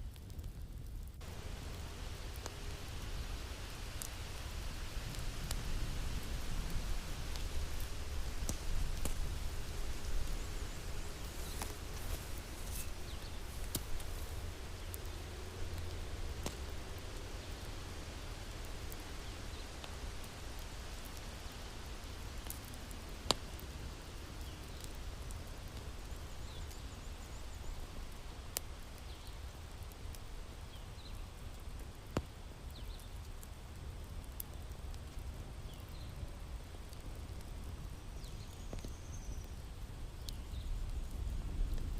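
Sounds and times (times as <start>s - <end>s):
wood fire crackling: 0.0s - 41.9s
sharp pops of fire: 0.1s - 17.6s, 22.4s - 26.8s, 28.1s - 36.1s.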